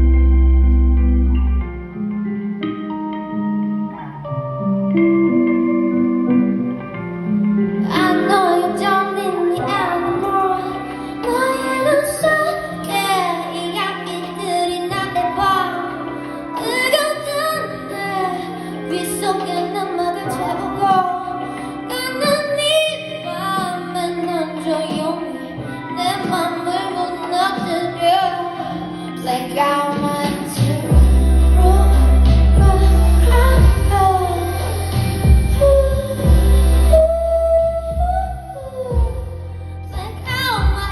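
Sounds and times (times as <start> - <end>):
instrumental accompaniment: 0.0 - 40.9
woman singing: 7.6 - 40.9.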